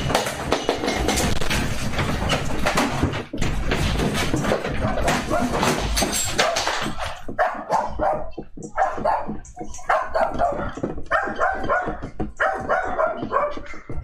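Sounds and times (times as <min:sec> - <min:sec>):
dog barking: 0:04.9 - 0:05.8, 0:07.3 - 0:14.0.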